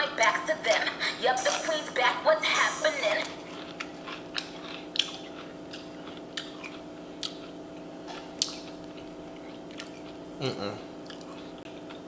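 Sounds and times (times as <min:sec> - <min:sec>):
steady low hum: 0:00.0 - 0:12.0
person chewing food: 0:03.2 - 0:12.0.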